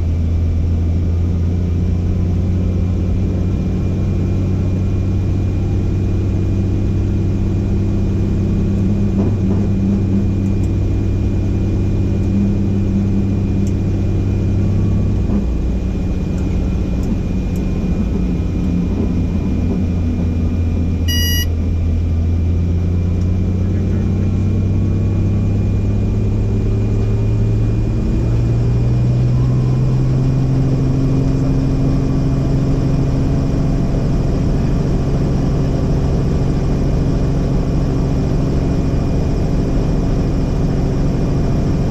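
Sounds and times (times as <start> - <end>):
helicopter engine and rotor drone: 1.1 - 28.8
electronic beep: 21.1 - 21.5
faint high whine: 21.1 - 21.5.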